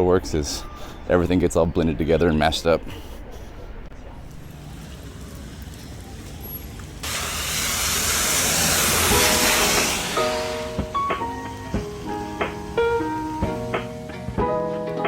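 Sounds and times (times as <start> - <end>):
loud hiss: 4.5 - 14.4
guitar music: 8.5 - 15.0.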